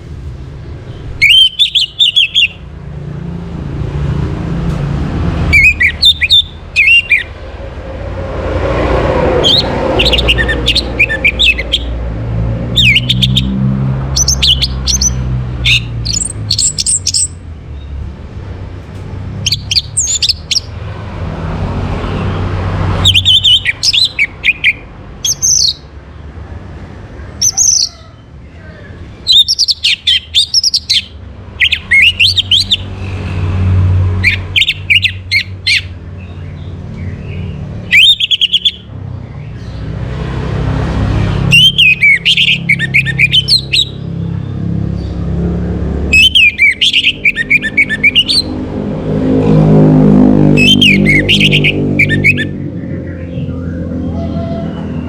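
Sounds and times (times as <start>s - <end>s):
thrush singing whistled phrases: 1.1s - 2.6s, 5.5s - 7.4s, 9.4s - 11.9s, 12.8s - 13.6s, 14.2s - 17.4s, 23.0s - 25.9s, 29.2s - 33.0s, 34.2s - 36.0s, 37.8s - 38.9s, 41.5s - 44.0s, 46.1s - 48.5s, 50.6s - 52.5s.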